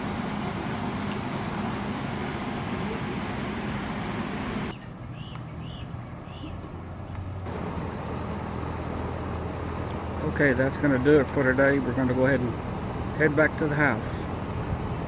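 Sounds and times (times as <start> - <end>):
low traffic hum: 0.0 - 15.0
bird chirping: 4.6 - 7.4.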